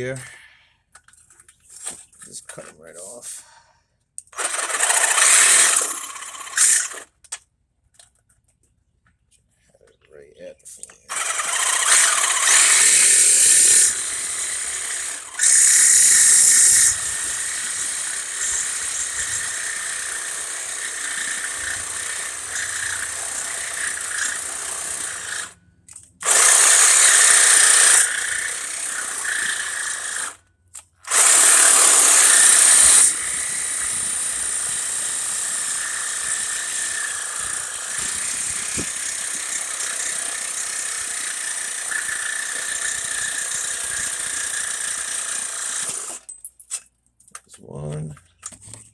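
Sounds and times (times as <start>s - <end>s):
power tool cutting metal: 4.4s - 7.2s, 10.8s - 25.6s, 26.2s - 30.4s, 31.0s - 46.3s.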